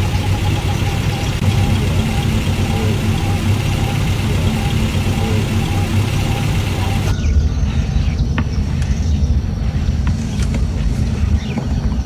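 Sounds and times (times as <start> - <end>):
vehicle engine idling: 0.0 - 7.2.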